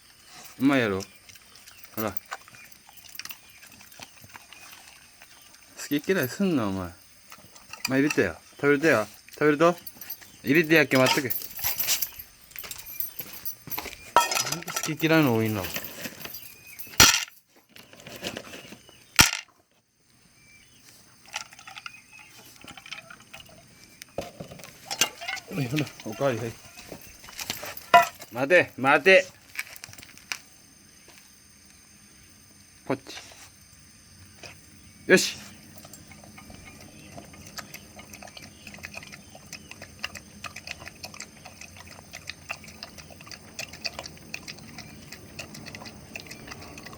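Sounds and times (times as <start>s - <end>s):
dog chewing and lapping: 0.2s - 16.8s, 21.0s - 28.3s, 35.4s - 46.9s
dog food bowl clinking: 5.3s - 19.5s, 21.3s - 23.6s, 24.2s - 29.2s.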